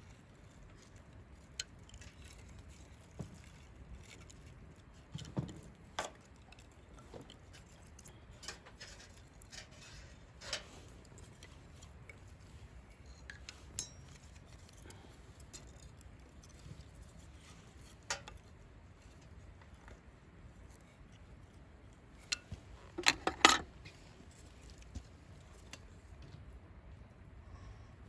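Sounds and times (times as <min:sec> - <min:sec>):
camp cookware clinking: 0:13.3 - 0:14.4, 0:22.2 - 0:23.8.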